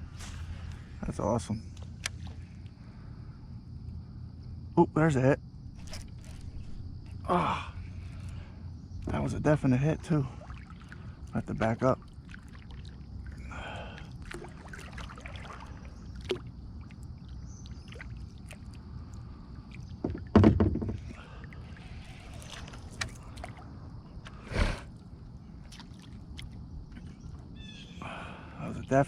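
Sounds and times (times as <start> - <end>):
steady low rumble: 0.0 - 12.2
paddle strokes in water: 5.8 - 7.2, 10.3 - 18.9, 19.7 - 24.5, 25.6 - 27.4
solid thumps: 20.0 - 21.2.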